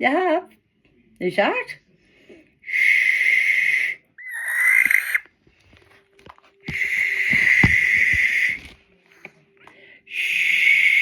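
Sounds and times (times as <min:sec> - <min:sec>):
barn owl screeching: 0:02.7 - 0:05.3, 0:06.6 - 0:08.8, 0:10.2 - 0:11.0.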